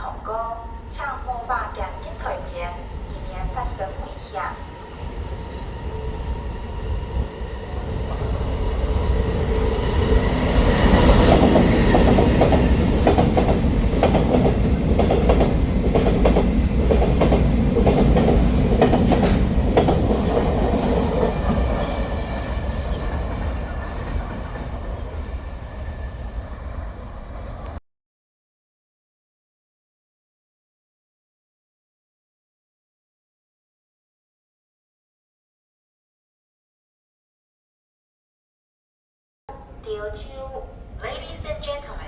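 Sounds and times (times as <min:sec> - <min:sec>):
train passing rumble: 0:00.0 - 0:27.8.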